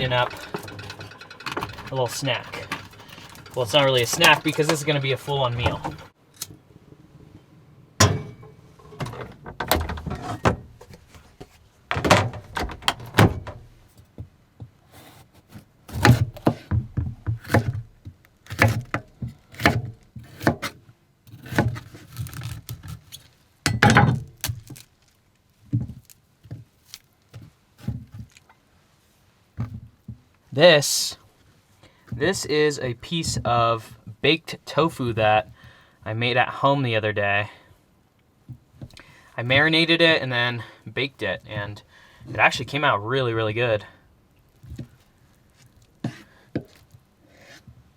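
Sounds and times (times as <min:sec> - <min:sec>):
kitchen things clattering: 0:00.0 - 0:06.2, 0:08.0 - 0:11.2.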